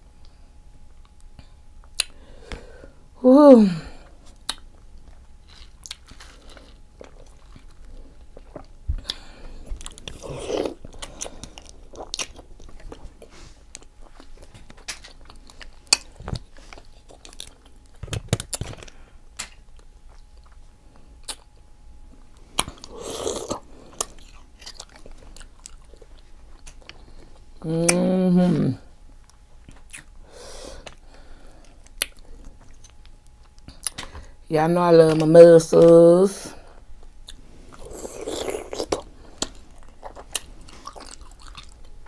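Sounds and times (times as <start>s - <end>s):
person chewing food: 0.2s - 2.6s, 4.1s - 28.1s, 28.9s - 34.3s, 36.7s - 42.0s
lip smacking: 1.8s - 2.2s, 4.4s - 4.7s, 21.2s - 21.5s, 29.3s - 30.2s, 31.7s - 34.1s
wet mouth clicks: 1.9s - 2.2s.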